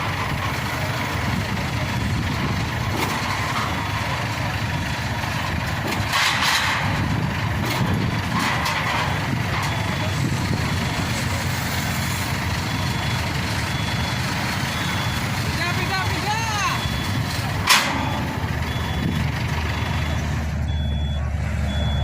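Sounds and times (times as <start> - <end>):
heavy engine running: 0.0 - 22.0.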